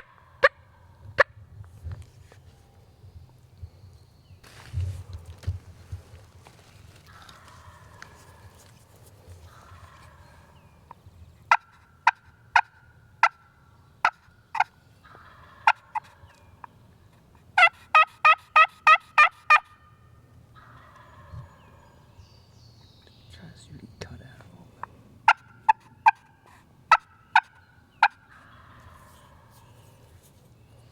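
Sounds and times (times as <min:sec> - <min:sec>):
fainter rough turkey calls: 0:04.5 - 0:19.9, 0:20.5 - 0:22.2, 0:23.6 - 0:30.9
turkey calling: 0:07.0 - 0:10.6, 0:11.5 - 0:16.7, 0:17.6 - 0:19.9, 0:20.6 - 0:22.2, 0:24.6 - 0:30.3.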